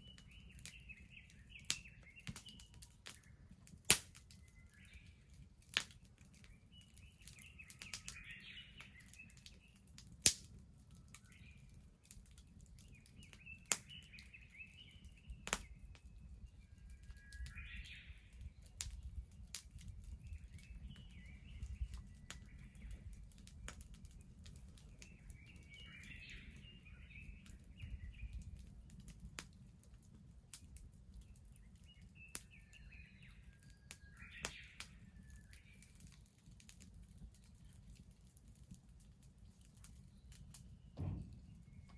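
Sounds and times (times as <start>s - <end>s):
bird singing: 0.0s - 3.4s, 6.5s - 9.8s, 12.8s - 19.1s, 20.2s - 23.2s, 24.8s - 28.4s, 31.6s - 36.0s, 40.0s - 41.9s
sharp pops from fire: 0.0s - 5.0s, 5.7s - 29.6s, 30.5s - 37.8s, 39.4s - 41.9s
bonfire crackling: 0.0s - 41.9s.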